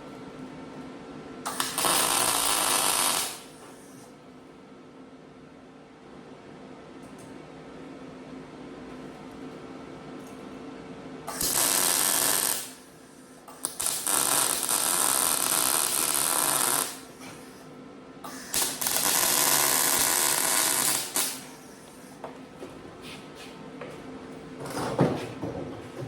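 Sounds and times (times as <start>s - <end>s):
welder crackling and sizzling: 1.5s - 3.9s, 11.3s - 12.8s, 13.6s - 17.2s, 18.4s - 21.6s.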